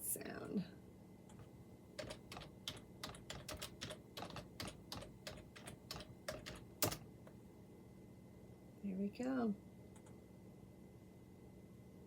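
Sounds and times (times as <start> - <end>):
computer keyboard keystrokes: 1.3 - 7.0.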